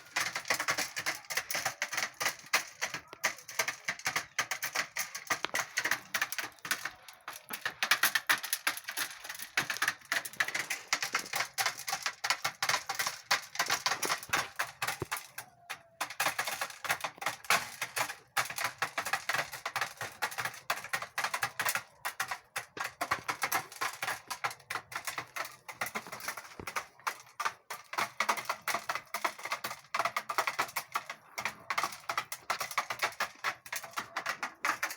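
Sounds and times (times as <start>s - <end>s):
chickens pecking corn: 0.0s - 34.9s.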